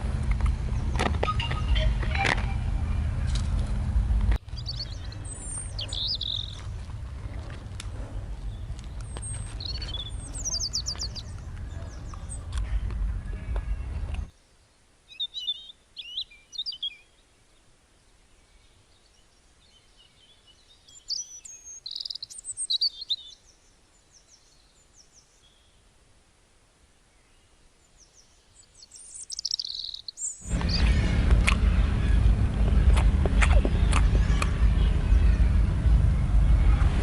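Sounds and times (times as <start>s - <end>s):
small birds chirping: 4.4s - 17.7s, 18.3s - 25.9s, 27.1s - 35.6s
loud rushing noise: 30.4s - 37.0s.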